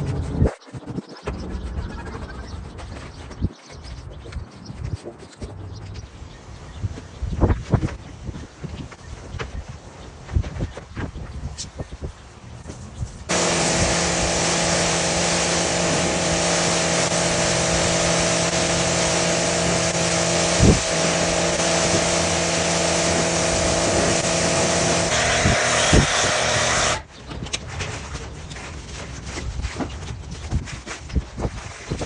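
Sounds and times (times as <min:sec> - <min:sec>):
pressure washer motor hum: 0:13.3 - 0:27.0
pressure washer spray hiss: 0:13.3 - 0:27.0.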